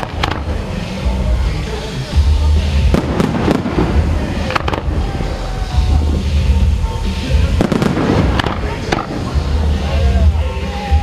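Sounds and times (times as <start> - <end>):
firework shells bursting: 0.0 - 0.7, 2.9 - 6.2, 7.5 - 9.4
firework crackling: 0.0 - 11.0
low rumble: 2.2 - 10.4.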